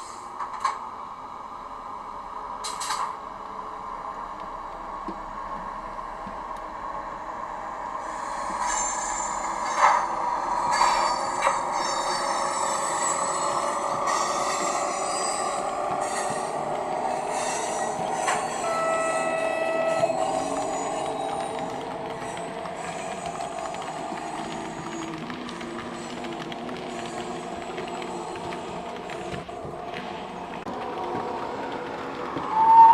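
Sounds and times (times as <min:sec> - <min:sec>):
model locomotive running sounds: 0:08.0 - 0:32.9
high squeals: 0:10.6 - 0:23.4.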